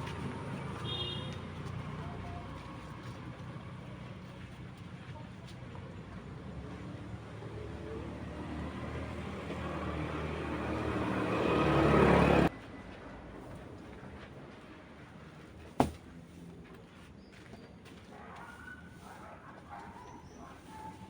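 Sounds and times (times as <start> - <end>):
vehicle engine approaching: 0.0 - 14.8.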